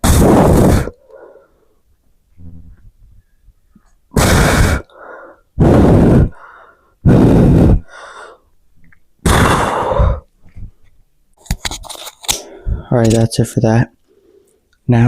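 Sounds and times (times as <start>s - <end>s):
man exhaling forcefully: 0.0s - 1.4s, 4.1s - 8.4s, 9.2s - 10.3s.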